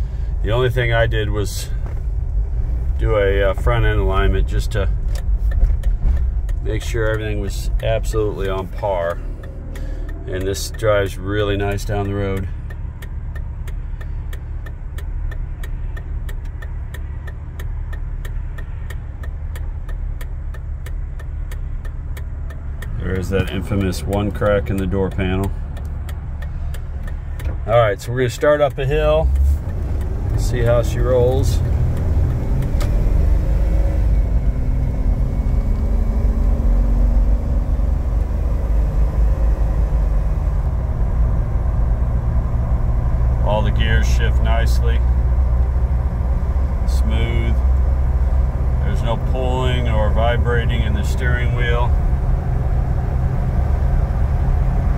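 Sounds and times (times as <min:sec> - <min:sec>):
engine and road rumble: 0:00.0 - 0:54.9
faint regular ticking: 0:00.0 - 0:54.9.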